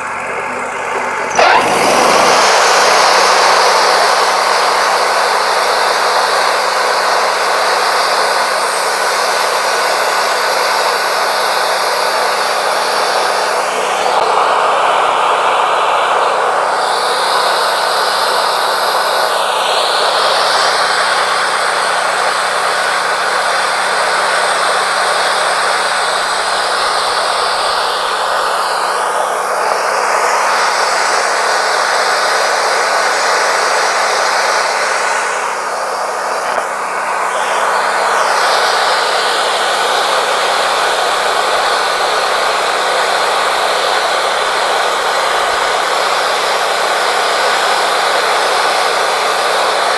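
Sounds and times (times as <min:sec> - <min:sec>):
band sawmill cutting wood: 0:00.0 - 0:07.8.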